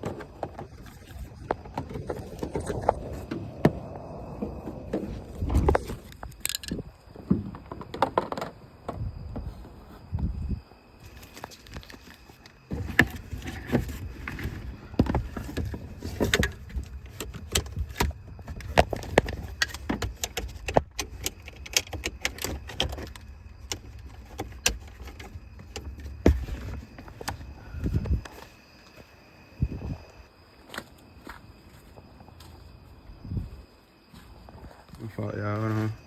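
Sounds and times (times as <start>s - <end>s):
low rumbling handling noise: 0.0s - 30.3s
rummaging clicks and rattles: 11.1s - 28.5s.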